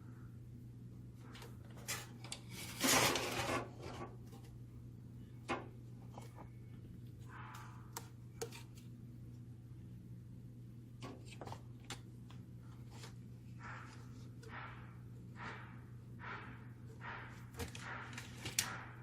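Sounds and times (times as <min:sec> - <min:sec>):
scraping rub: 0:01.8 - 0:04.2.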